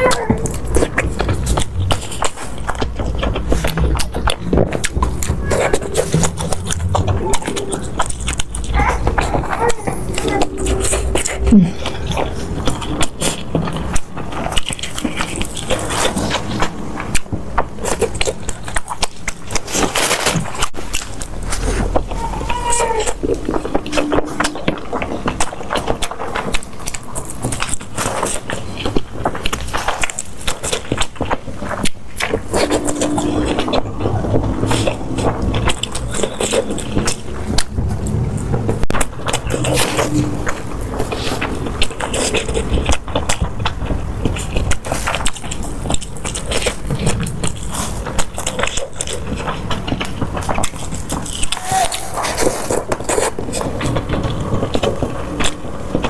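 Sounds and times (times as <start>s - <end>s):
steady low hum: 0.0s - 22.4s, 31.2s - 51.4s
crunching and chewing food: 0.0s - 56.0s.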